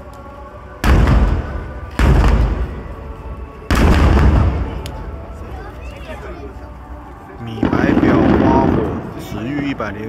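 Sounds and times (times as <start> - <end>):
firework shells booming: 0.8 - 2.9, 3.7 - 4.8.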